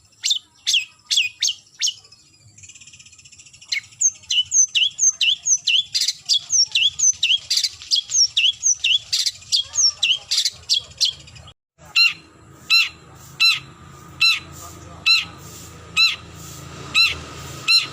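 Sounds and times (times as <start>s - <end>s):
harsh bird call: 3.6s - 17.9s
shrike calling sharp notes: 11.8s - 17.9s.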